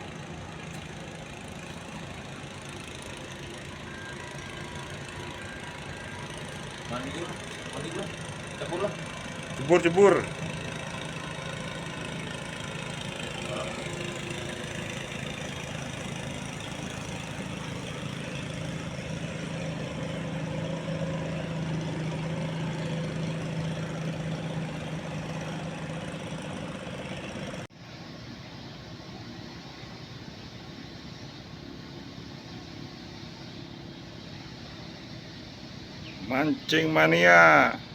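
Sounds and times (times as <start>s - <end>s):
engine humming: 0.0s - 27.7s.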